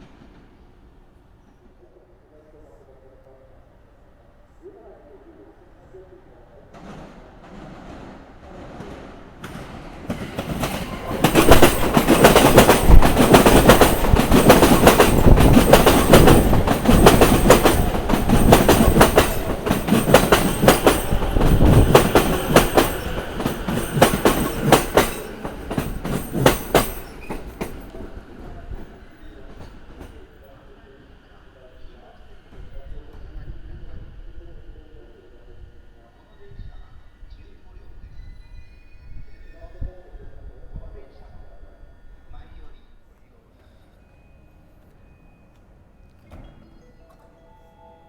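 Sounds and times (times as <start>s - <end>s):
train wheels clacking over rail joints: 6.8s - 30.2s.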